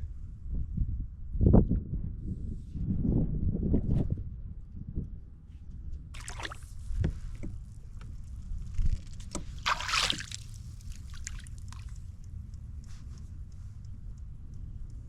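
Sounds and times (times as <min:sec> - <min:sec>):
water splashing and dripping: 0:06.2 - 0:06.7, 0:09.6 - 0:12.0.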